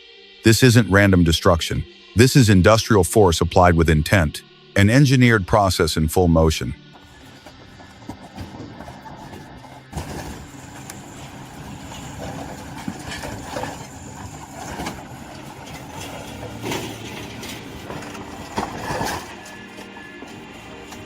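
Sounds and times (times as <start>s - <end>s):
heavy machine engine drone: 0.5s - 21.0s
metal crunches and clangs: 7.0s - 21.0s.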